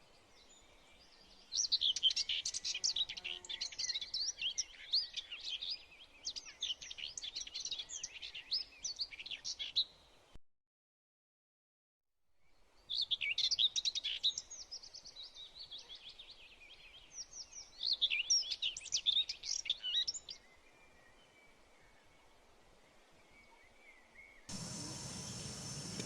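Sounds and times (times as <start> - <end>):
birds chirping and whistling: 24.5 - 26.0.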